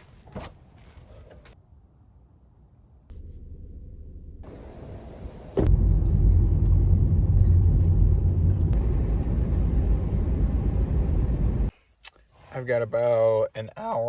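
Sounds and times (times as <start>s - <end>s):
road noise: 0.0s - 11.8s
car engine rumble: 3.1s - 11.7s.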